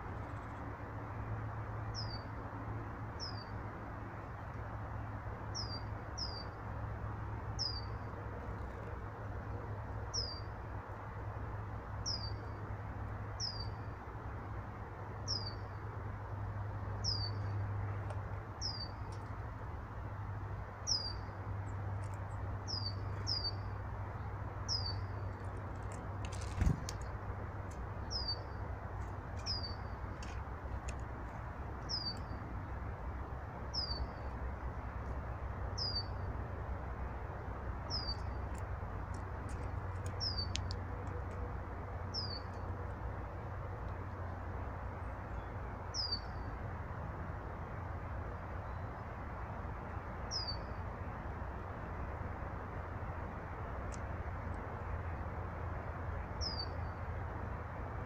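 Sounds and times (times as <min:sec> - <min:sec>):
sharp thump: 0:26.5 - 0:26.9
faint clicks: 0:38.5 - 0:41.4, 0:53.9 - 0:54.6.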